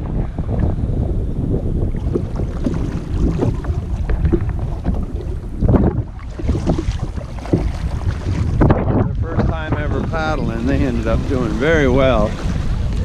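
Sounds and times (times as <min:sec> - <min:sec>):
wind rumbling on microphone: 0:00.0 - 0:13.0
kayak paddle splashing water: 0:01.8 - 0:13.0.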